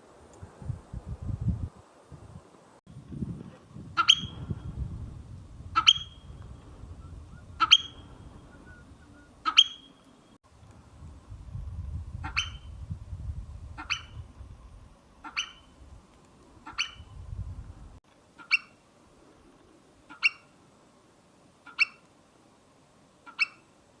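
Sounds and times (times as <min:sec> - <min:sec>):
marmot whistling: 0:04.0 - 0:04.5, 0:05.8 - 0:06.3, 0:07.0 - 0:10.0.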